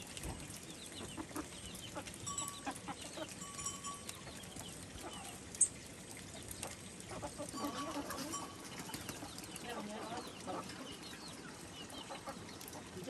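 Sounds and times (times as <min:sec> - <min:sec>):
chickens clucking: 0:00.9 - 0:03.5, 0:06.6 - 0:13.0.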